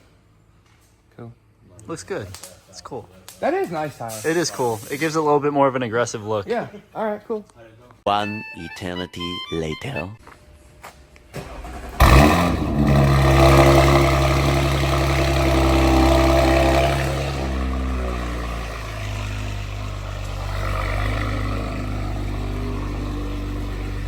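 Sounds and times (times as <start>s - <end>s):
car engine idling: 11.4s - 24.0s.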